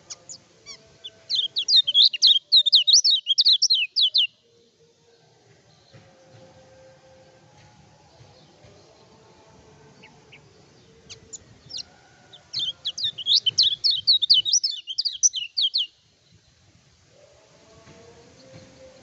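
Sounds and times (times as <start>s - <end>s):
songbird chirping: 0.0s - 19.0s.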